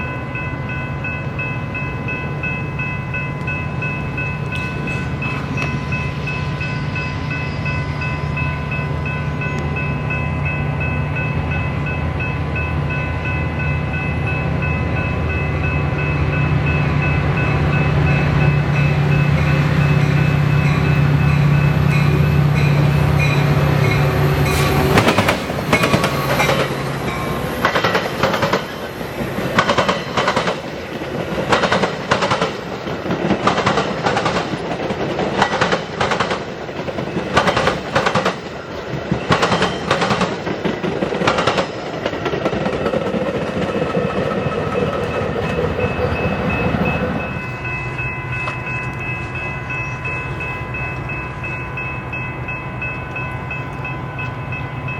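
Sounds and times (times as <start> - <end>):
high ringing tones: 0.0 - 27.6, 44.8 - 54.9
wheels clacking over rail joints: 23.2 - 47.4.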